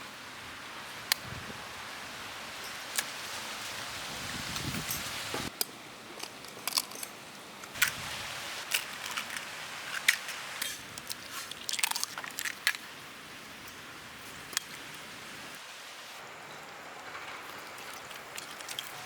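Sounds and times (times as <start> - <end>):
small cracks and snaps: 8.6 - 12.8.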